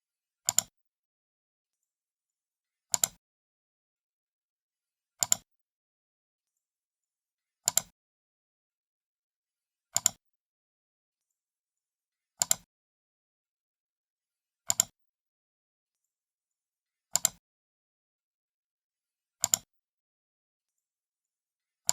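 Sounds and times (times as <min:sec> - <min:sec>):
computer mouse button clicking: 0:07.7 - 0:07.9, 0:10.0 - 0:10.2, 0:17.2 - 0:17.4, 0:19.4 - 0:19.7.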